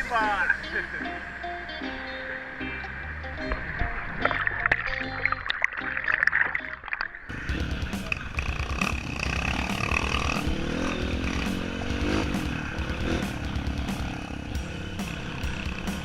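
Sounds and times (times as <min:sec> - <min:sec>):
motorcycle engine revving: 0:07.3 - 0:16.0.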